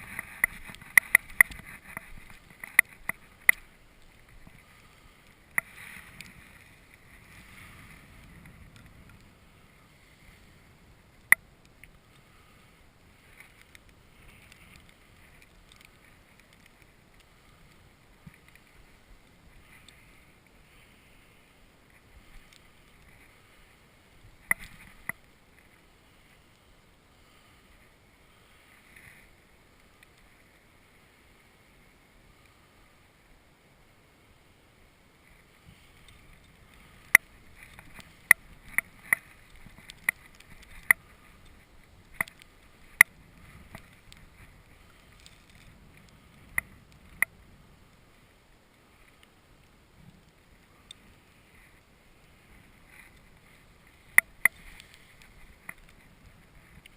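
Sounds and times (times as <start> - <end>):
light wind hiss: 0.0 - 56.9.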